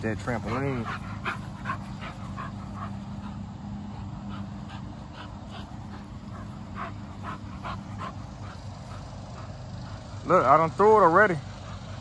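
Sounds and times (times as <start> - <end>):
steady low hum: 0.0 - 12.0
puppy making soft sounds: 0.1 - 8.6.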